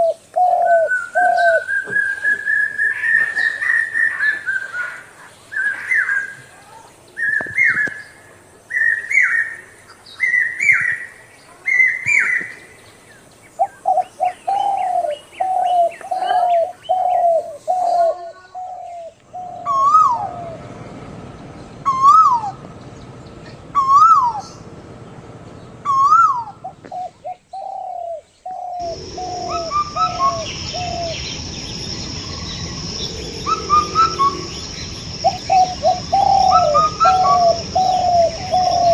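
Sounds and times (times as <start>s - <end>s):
birds calling: 0.0s - 38.9s
high twittering: 28.6s - 38.9s
steady high buzz: 28.8s - 38.9s.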